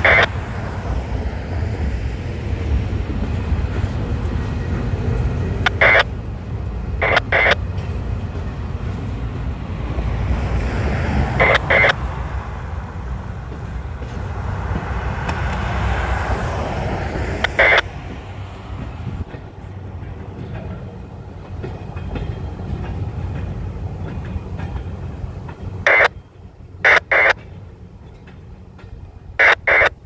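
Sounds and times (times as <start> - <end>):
scanner radio squelch bursts: 0.0 - 0.3, 5.6 - 6.1, 7.0 - 7.6, 11.4 - 12.0, 17.4 - 17.9, 25.8 - 26.2, 26.8 - 27.4, 29.4 - 30.0
freight train cars rolling past: 0.0 - 30.0.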